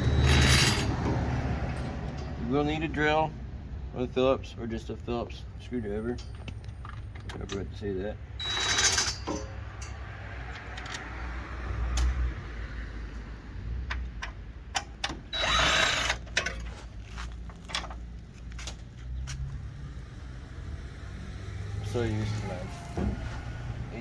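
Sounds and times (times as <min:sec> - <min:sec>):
power drill running: 0:08.4 - 0:09.3, 0:15.3 - 0:16.3.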